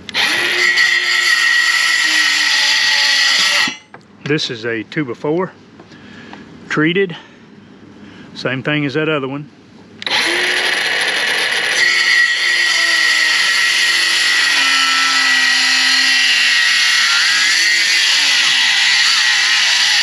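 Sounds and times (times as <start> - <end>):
circular saw cutting wood: 0.0 - 3.8, 10.0 - 20.0.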